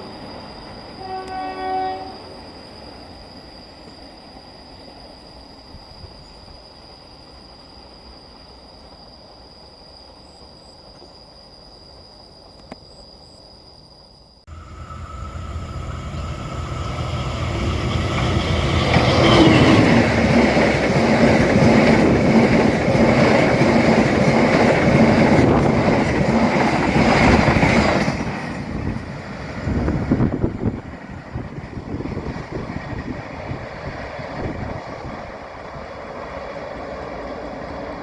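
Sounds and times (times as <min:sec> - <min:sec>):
train wheels rumbling on rails: 0:14.5 - 0:38.0.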